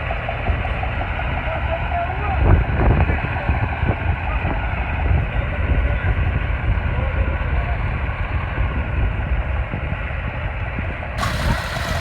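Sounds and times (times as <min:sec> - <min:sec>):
tractor engine rumbling: 0:11.2 - 0:12.0.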